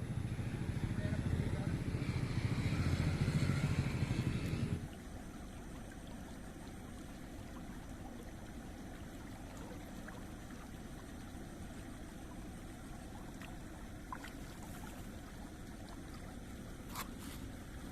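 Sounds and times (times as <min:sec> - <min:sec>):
water rushing in a channel: 0:00.0 - 0:17.9.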